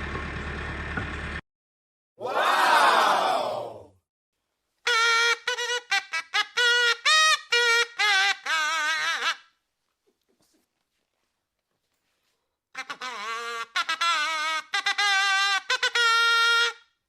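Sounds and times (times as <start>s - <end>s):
crowd shouting: 2.2s - 3.9s.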